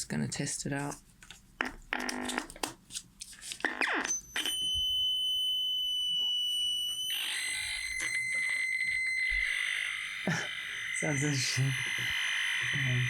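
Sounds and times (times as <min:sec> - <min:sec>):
high-pitched electronic whistle: 0:04.0 - 0:13.0.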